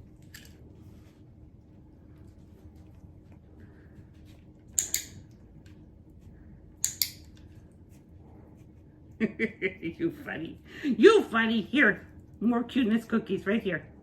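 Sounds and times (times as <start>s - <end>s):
faint room noise: 0.0s - 14.0s.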